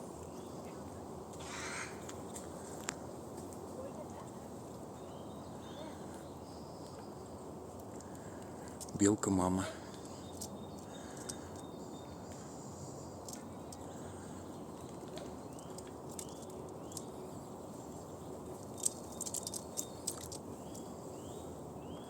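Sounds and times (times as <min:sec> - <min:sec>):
small birds chirping: 0:00.0 - 0:22.0
squirrel gnawing nut shell: 0:14.7 - 0:17.2, 0:18.6 - 0:20.9.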